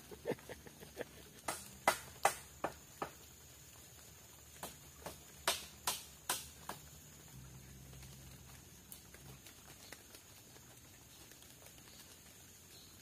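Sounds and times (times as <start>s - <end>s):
sharp taps and knocks: 1.4s - 3.3s, 4.6s - 7.0s.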